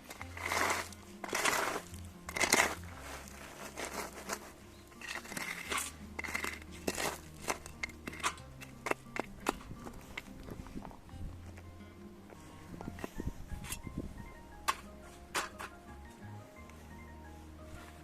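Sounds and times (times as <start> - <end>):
crinkling and rustling: 0.0 - 11.7.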